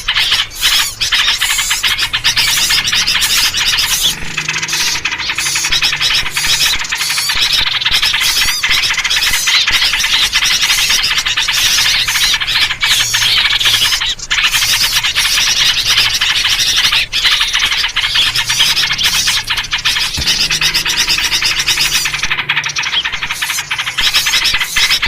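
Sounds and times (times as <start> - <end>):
bulbul calls: 0.0 - 25.0
small birds chattering: 0.0 - 25.0.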